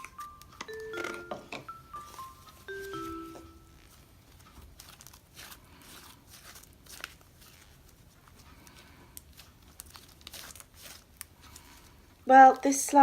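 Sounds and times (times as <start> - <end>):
slime crackling and popping: 4.4 - 11.7.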